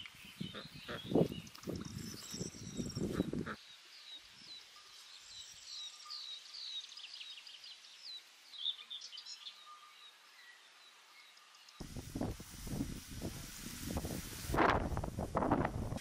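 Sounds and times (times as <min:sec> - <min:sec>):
songbirds chirping and warbling: 0:00.0 - 0:12.4.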